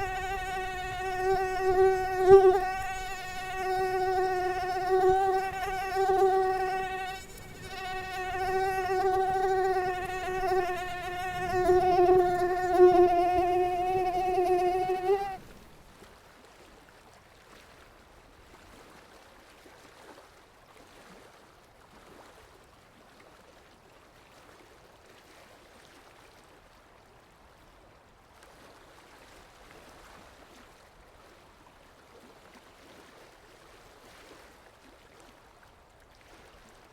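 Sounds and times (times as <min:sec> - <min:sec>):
mosquito wings whining: 0:00.0 - 0:15.5
faint background hiss: 0:00.0 - 0:16.1.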